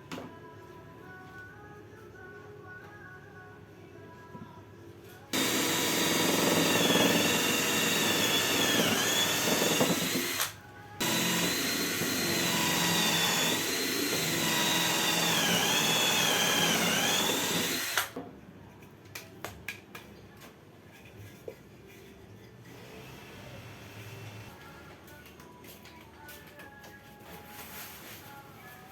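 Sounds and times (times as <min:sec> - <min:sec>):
cordless drill whining: 0:05.4 - 0:18.2.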